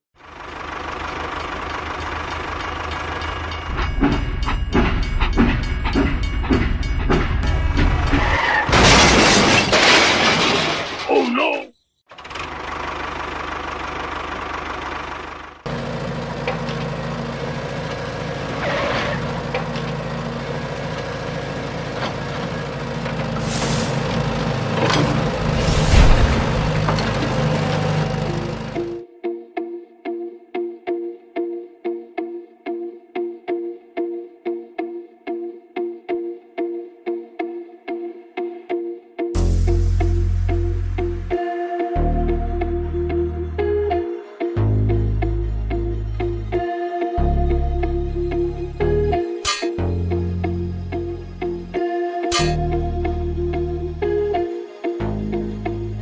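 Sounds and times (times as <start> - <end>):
small model tractor engine running: 0.2 - 3.6, 12.1 - 23.6, 26.4 - 29.0
mechanical rumble: 0.3 - 9.4, 14.2 - 29.0
rhythmic clatter of knocks: 1.4 - 8.4.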